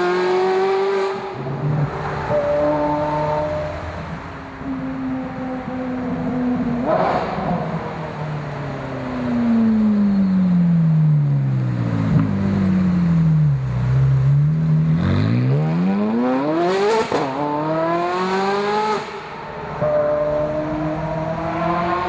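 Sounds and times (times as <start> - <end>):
sports car engine revving: 5.9 - 8.4, 9.1 - 19.3.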